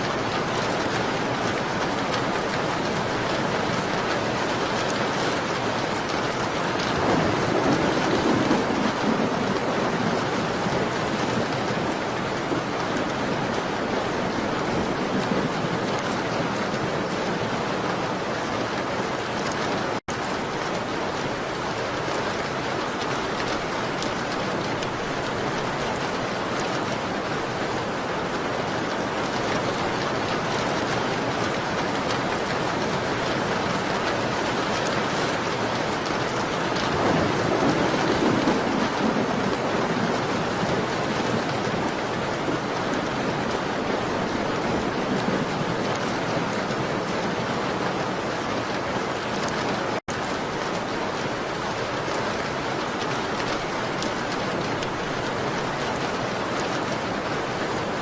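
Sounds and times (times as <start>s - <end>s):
rain pattering on a window: 0.0s - 58.0s.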